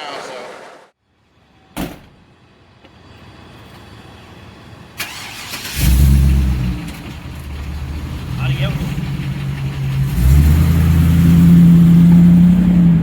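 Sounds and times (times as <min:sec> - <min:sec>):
diesel truck engine starting: 0:05.0 - 0:13.0.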